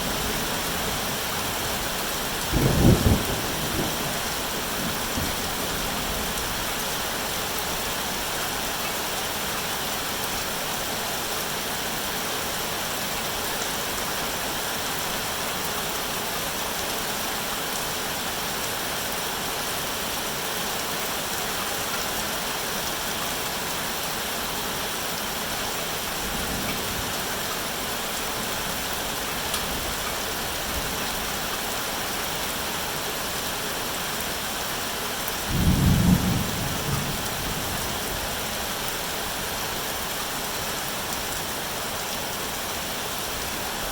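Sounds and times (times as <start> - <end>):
rain falling: 0.0 - 43.9
thunder rumbling: 2.4 - 6.3, 35.5 - 38.3.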